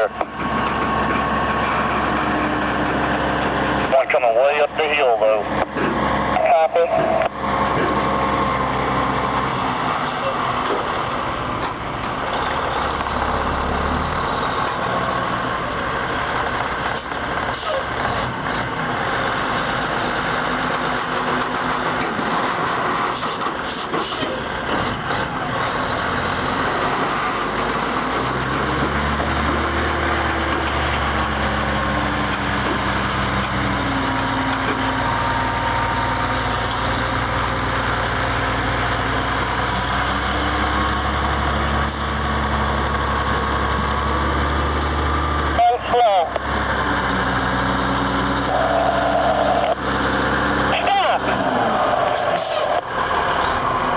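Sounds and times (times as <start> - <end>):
road noise: 0.0 - 53.9
truck diesel engine running: 0.0 - 53.9.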